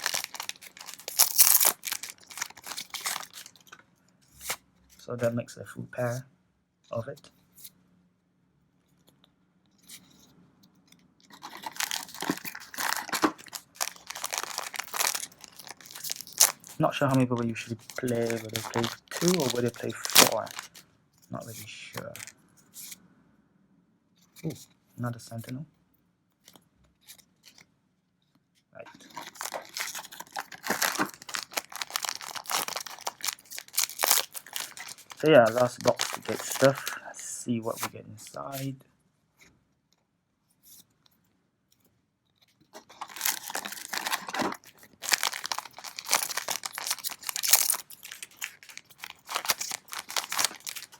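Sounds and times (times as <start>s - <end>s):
plastic wrapper crinkling and tearing: 0.0s - 3.8s, 11.2s - 20.8s, 22.0s - 22.4s, 28.9s - 37.0s, 42.7s - 50.9s.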